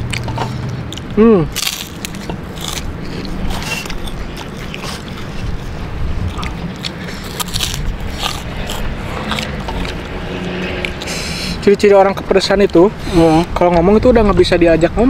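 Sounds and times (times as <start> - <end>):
chewing crunchy crackers: 0.0 - 11.6.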